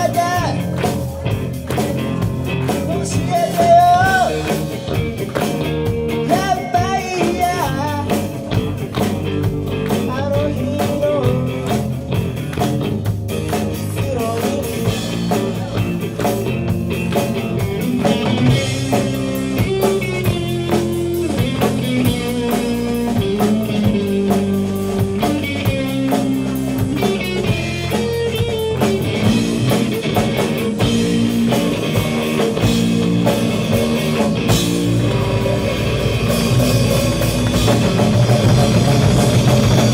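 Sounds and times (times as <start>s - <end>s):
rock music: 0.0s - 39.9s
person singing: 1.8s - 4.7s, 6.2s - 8.4s, 9.8s - 12.1s, 13.7s - 16.4s, 17.8s - 28.4s.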